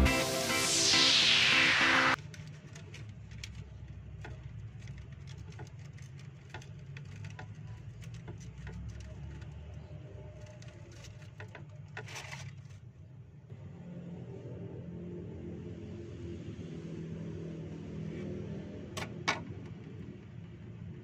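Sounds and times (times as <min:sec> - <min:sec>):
paper crinkling and rustling: 0:02.2 - 0:12.9.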